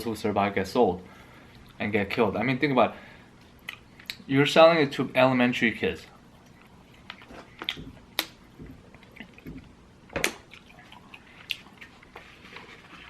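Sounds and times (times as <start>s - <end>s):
wet mouth clicks and smacks chewing: 6.3s - 12.2s.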